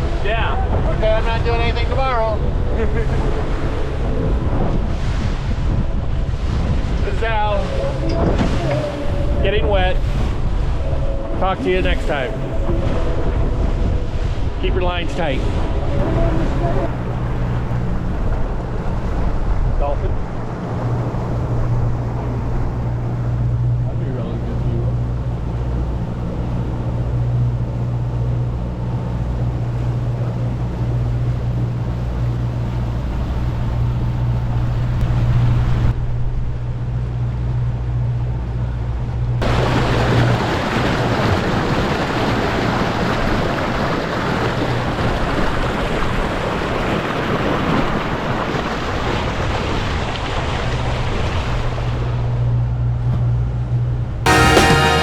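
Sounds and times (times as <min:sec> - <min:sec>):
wind on microphone: 0:00.0 - 0:24.0
water rushing past hull: 0:00.0 - 0:53.7
outboard motor humming: 0:00.0 - 0:55.0.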